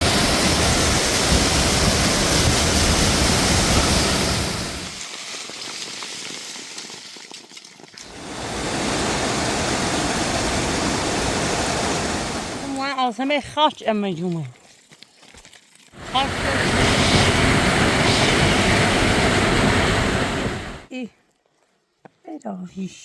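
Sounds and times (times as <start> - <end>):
waterfall rushing: 0.0 - 5.0, 8.0 - 12.9, 16.0 - 20.9.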